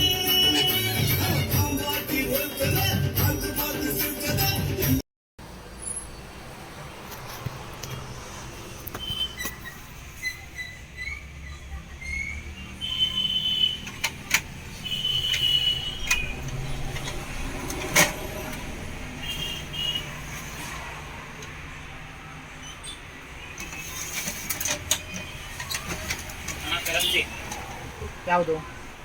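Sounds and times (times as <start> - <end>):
low rumble of traffic: 5.4 - 29.0.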